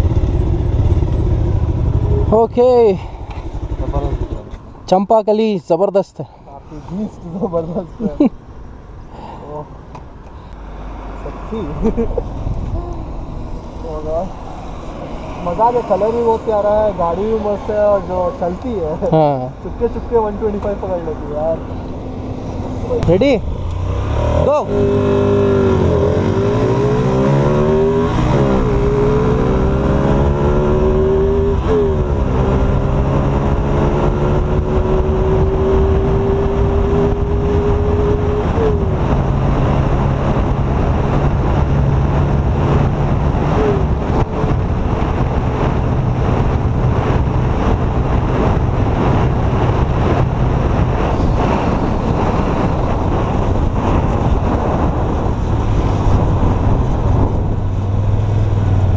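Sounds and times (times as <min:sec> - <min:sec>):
motorcycle engine accelerating: 0:00.0 - 0:04.6, 0:21.4 - 0:58.9.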